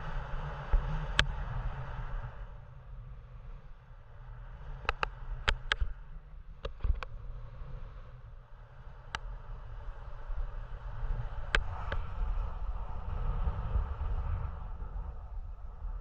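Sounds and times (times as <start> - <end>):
wind buffeting microphone: 8.6 - 16.0.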